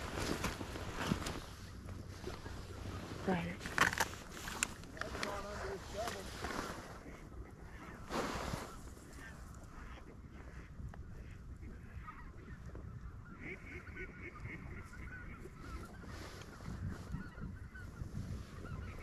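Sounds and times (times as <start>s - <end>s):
geese honking: 13.2s - 16.0s.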